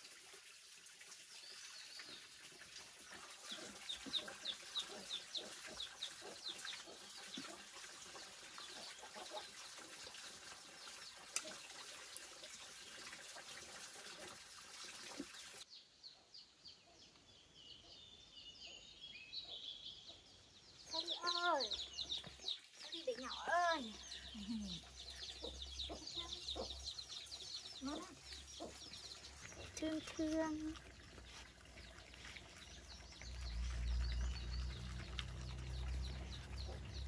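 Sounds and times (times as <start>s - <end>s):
birds chirping: 15.1s - 37.0s.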